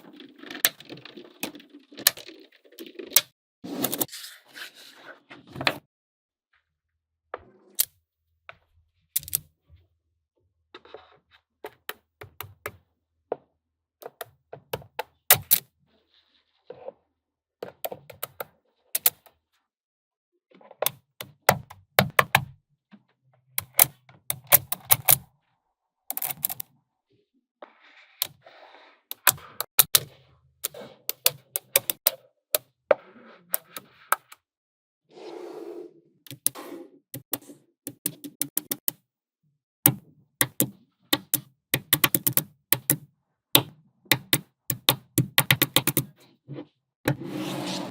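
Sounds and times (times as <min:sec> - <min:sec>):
magnetic balls clicking together: 0:39.9 - 0:43.0, 0:44.1 - 0:46.1.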